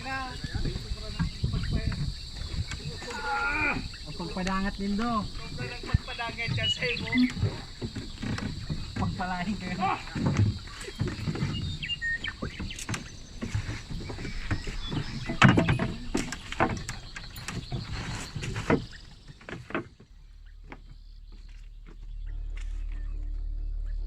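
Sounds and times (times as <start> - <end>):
irregular knocks and clatter: 0.0 - 3.2, 3.8 - 22.0
steady high drone: 22.0 - 24.0
background music: 22.2 - 24.0.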